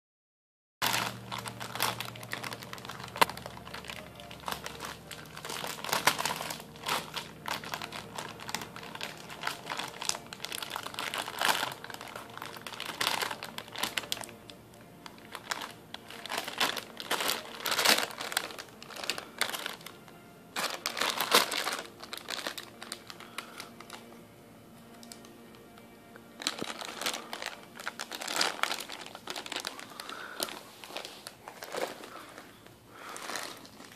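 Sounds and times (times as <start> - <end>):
plastic package crinkling: 0.8 - 24.2, 24.8 - 33.9.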